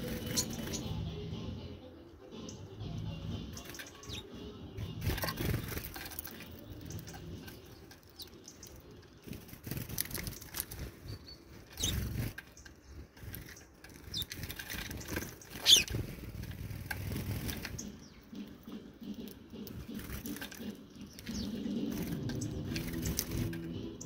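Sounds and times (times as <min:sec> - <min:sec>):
bird wings fluttering: 0:05.0 - 0:18.0, 0:19.3 - 0:23.8.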